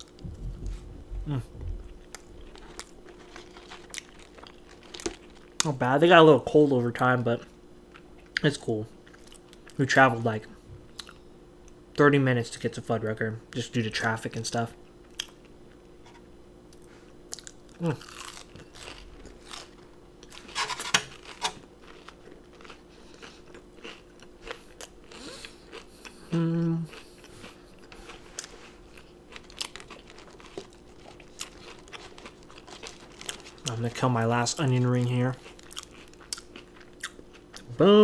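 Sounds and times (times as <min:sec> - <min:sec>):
crunching and chewing: 0:00.0 - 0:05.9, 0:07.4 - 0:09.8, 0:10.9 - 0:11.8, 0:14.8 - 0:37.8
person humming: 0:00.2 - 0:01.9, 0:26.2 - 0:27.0.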